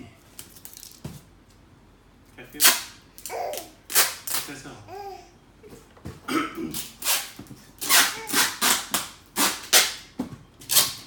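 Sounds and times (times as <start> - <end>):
tape ripped off roll: 7.0 - 10.1.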